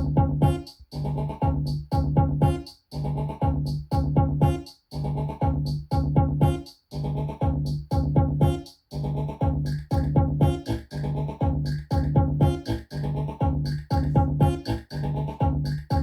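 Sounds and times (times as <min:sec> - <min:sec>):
synth chords: 0:00.0 - 0:01.3, 0:09.8 - 0:15.2
pitch-dropping kick drum: 0:00.0 - 0:02.7, 0:03.4 - 0:04.7, 0:05.4 - 0:06.7, 0:07.4 - 0:08.7, 0:09.4 - 0:16.0
synth bass note: 0:00.0 - 0:16.0.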